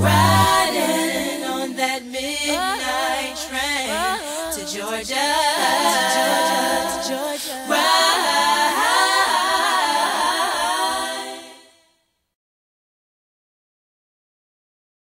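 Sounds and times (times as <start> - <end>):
layered vocal harmonies: 0.0 - 11.8.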